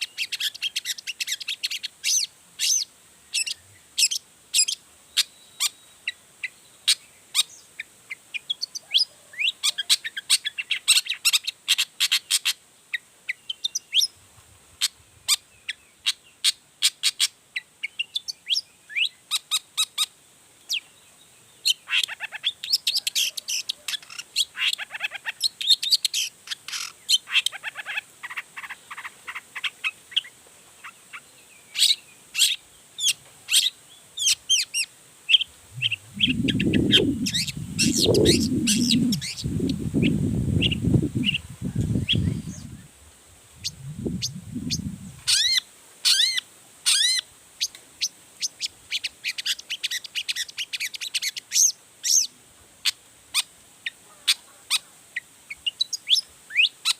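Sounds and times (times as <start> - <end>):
rapid bird trills: 21.6 - 42.9, 43.6 - 47.2
shrike singing: 35.4 - 43.0, 43.6 - 45.5.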